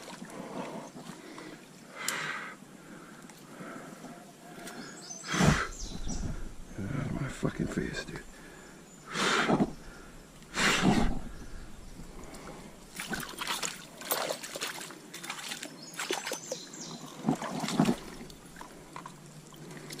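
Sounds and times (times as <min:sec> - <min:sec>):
water splashing in a stream: 0:00.0 - 0:00.3, 0:11.1 - 0:20.0.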